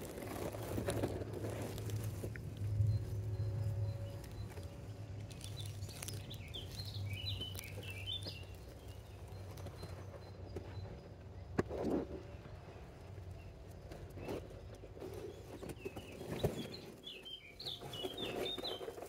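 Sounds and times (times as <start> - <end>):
low steady hum: 0.0 - 15.6
songbird twittering: 2.7 - 11.0, 15.2 - 19.0.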